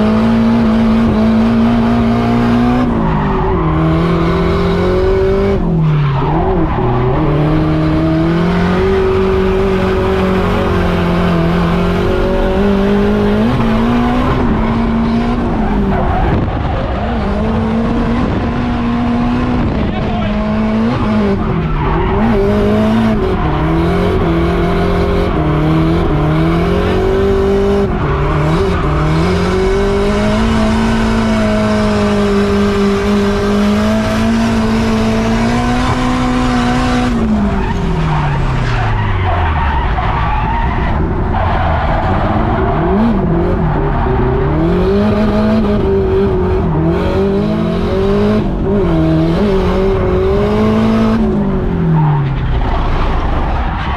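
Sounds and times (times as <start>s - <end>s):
car engine revving high: 0.0s - 53.9s
tyres squealing and skidding: 2.7s - 4.5s, 5.6s - 7.8s, 13.4s - 18.5s, 19.7s - 30.7s, 35.6s - 45.4s, 51.6s - 53.9s.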